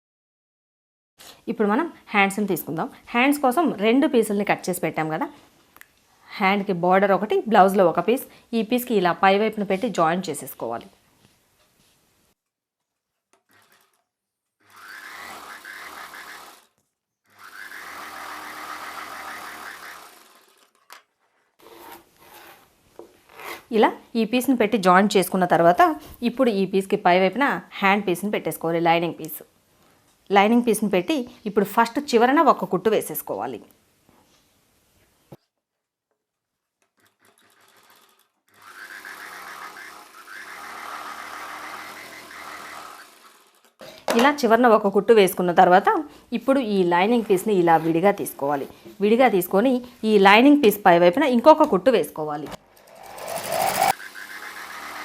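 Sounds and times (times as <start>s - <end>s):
sewing machine stitching: 13.3s - 22.5s, 37.0s - 43.9s, 52.4s - 55.0s.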